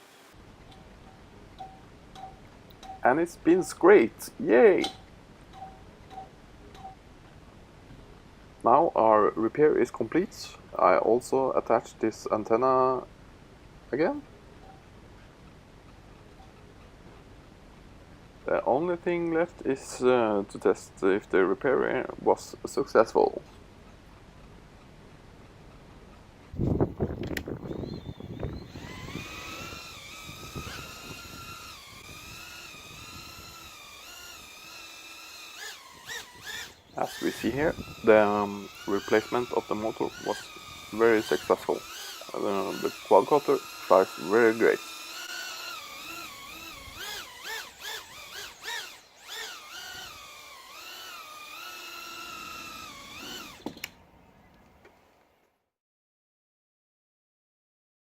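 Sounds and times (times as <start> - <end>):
drone motors whining: 27.4 - 54.0.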